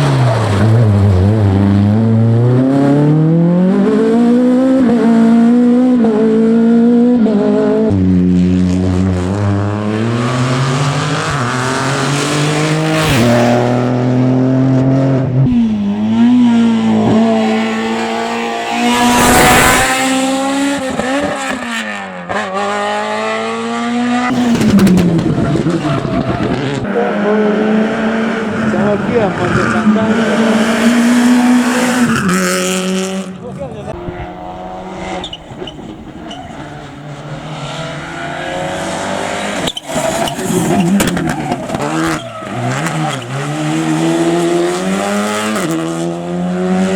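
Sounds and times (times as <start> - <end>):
rally car engines revving: 0.0 - 46.9
loud rush of noise: 15.5 - 20.8.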